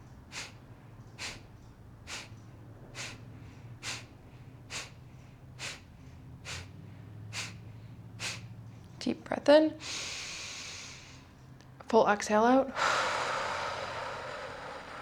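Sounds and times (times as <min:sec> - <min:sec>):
forceful nasal exhales: 0:00.3 - 0:00.6, 0:01.2 - 0:01.5, 0:02.1 - 0:08.6, 0:09.8 - 0:11.3, 0:12.8 - 0:15.0.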